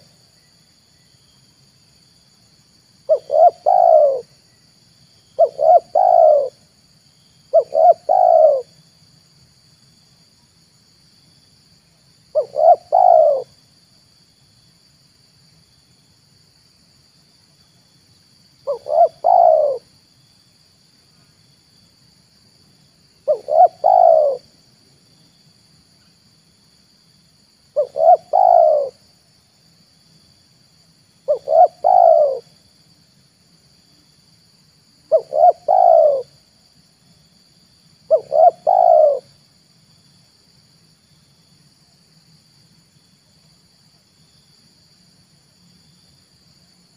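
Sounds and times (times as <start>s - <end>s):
dove cooing: 3.1s - 4.3s, 5.4s - 6.6s, 7.5s - 8.7s, 12.3s - 13.5s, 18.6s - 19.9s, 23.2s - 24.5s, 27.8s - 29.0s, 31.3s - 32.5s, 35.1s - 36.4s, 38.1s - 39.4s.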